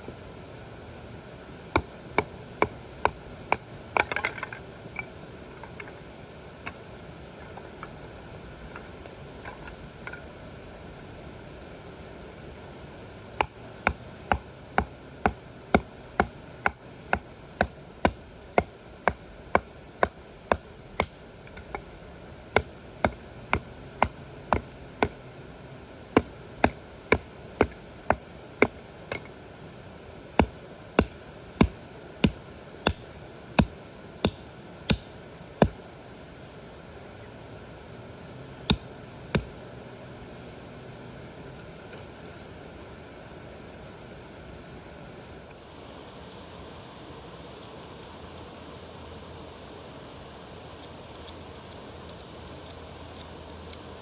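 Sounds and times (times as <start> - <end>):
steady background hiss: 0.0 - 54.0.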